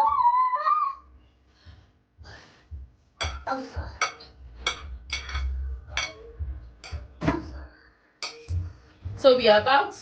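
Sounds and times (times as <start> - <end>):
spoon clinking on metal pot: 4.0 - 7.0, 8.2 - 8.5.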